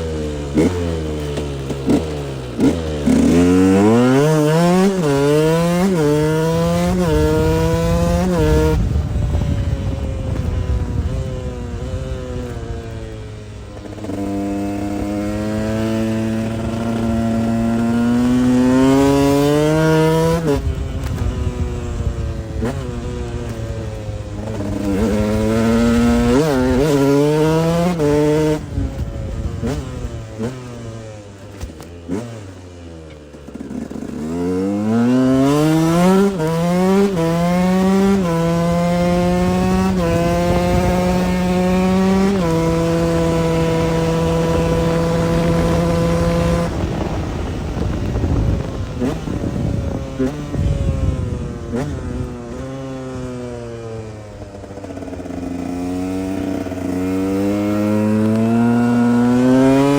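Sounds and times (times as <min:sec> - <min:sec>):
two-stroke engine accelerating: 0:00.0 - 0:59.9.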